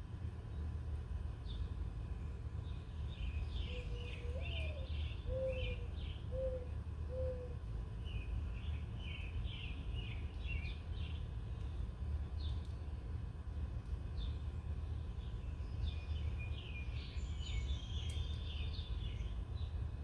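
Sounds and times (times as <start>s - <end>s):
small birds chirping: 1.4s - 12.9s, 14.0s - 19.9s
lower drawn-out bird call: 3.7s - 7.6s.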